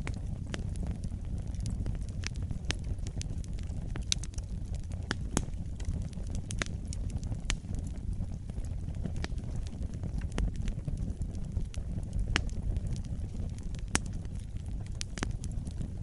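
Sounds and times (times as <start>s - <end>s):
fire rumbling and crackling: 0.0s - 16.0s.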